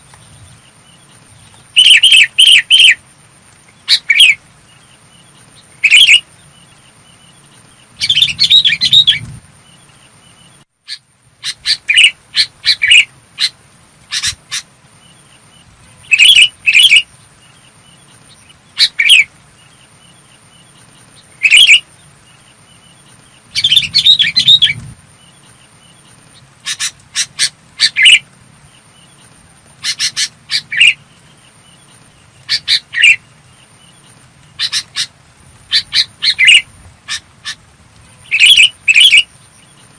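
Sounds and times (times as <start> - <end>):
bulbul singing: 0.2 - 3.0, 3.7 - 35.1, 38.2 - 39.9.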